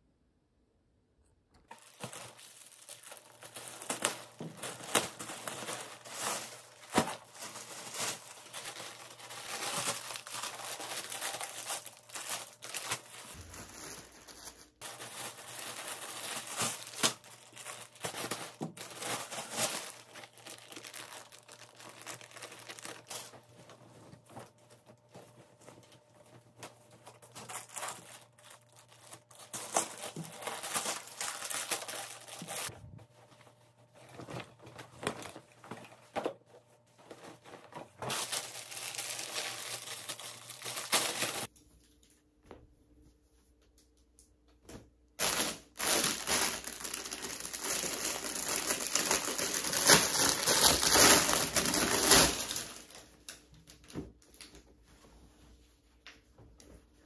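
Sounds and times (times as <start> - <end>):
packaging crinkling and tearing: 1.7 - 25.2, 25.9 - 32.7, 37.1 - 41.5, 45.2 - 54.5.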